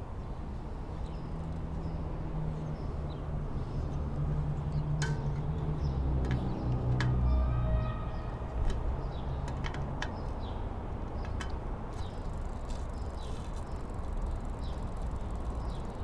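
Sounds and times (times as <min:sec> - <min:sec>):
clicks and taps on bicycle: 0:02.5 - 0:07.4, 0:08.6 - 0:16.0.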